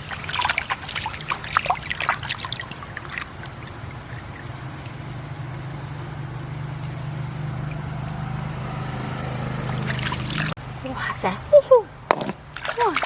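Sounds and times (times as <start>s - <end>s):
short knocks or splashes: 12.1s - 13.0s.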